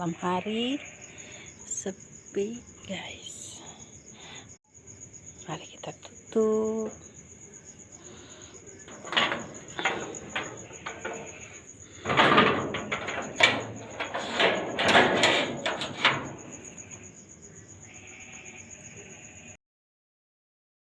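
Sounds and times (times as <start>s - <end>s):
high cricket trill: 0.0s - 19.6s
shop doors scraping and knocking: 8.0s - 17.3s.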